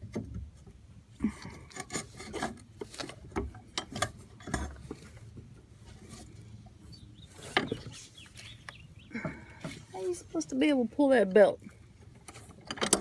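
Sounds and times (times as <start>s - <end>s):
clicks and rattles of mower belt: 1.4s - 6.6s, 7.3s - 10.1s, 11.8s - 13.0s.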